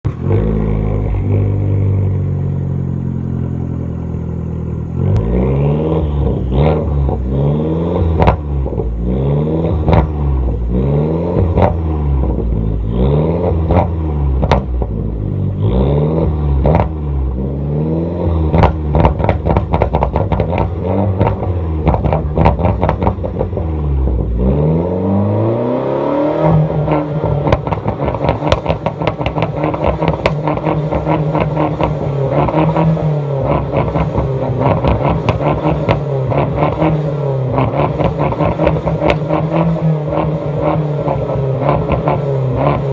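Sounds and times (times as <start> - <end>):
car engine revving: 0.0 - 42.9
exhaust pops and crackles: 8.1 - 9.0, 9.8 - 10.6, 11.4 - 12.4, 13.6 - 15.0, 16.6 - 17.0, 18.5 - 24.4, 27.0 - 42.9.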